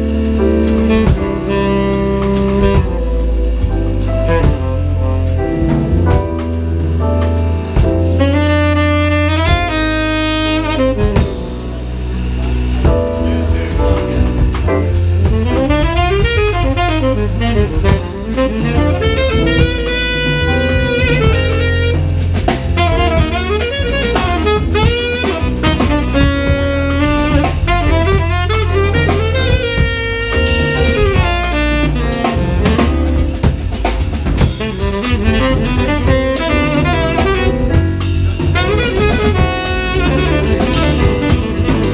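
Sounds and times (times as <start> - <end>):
bass: 0.0 - 41.9
drum kit: 0.0 - 41.9
piano: 0.0 - 41.9
tenor saxophone melody: 0.0 - 41.9.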